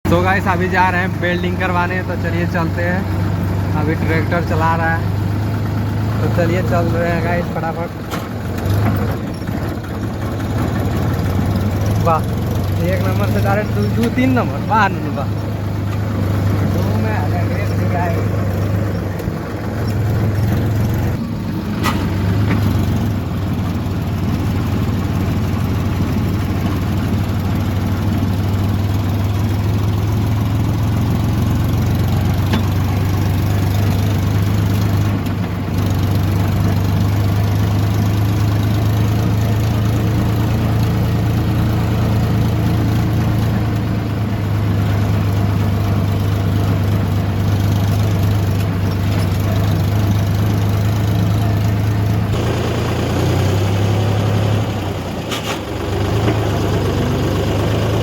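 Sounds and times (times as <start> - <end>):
diesel tractor engine drone: 0.0 - 58.0.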